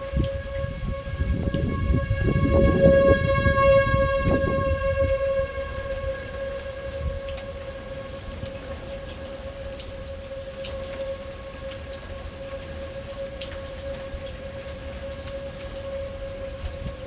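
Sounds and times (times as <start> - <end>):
low storm rumble: 0.0 - 17.0
siren steady pitch: 0.0 - 17.0
steady rain: 0.0 - 17.0.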